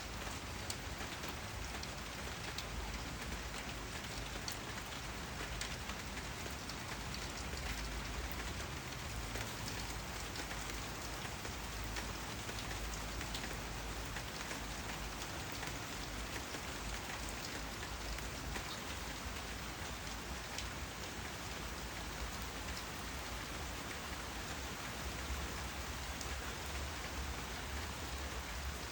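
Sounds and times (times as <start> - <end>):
raindrops tapping on surfaces: 0.0 - 28.9
steady rain hiss: 0.0 - 28.9.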